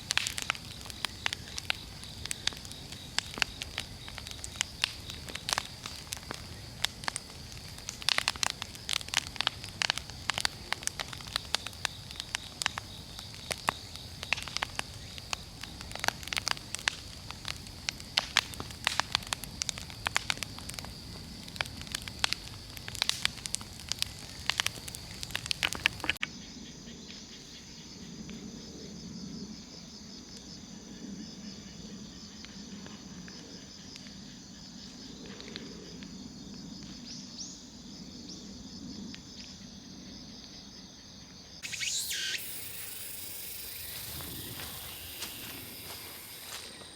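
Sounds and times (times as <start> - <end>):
bonfire crackling and popping: 0.0 - 26.2, 41.6 - 46.9
insects buzzing: 0.0 - 46.9.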